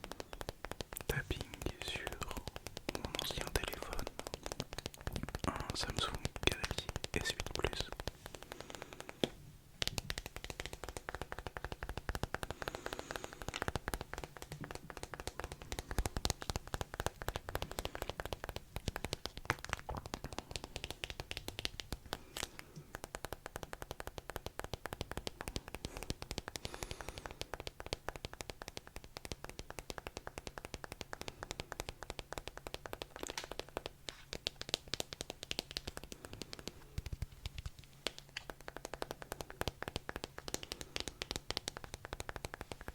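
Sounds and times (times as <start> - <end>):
rapid crackling clicks: 0.0 - 42.9.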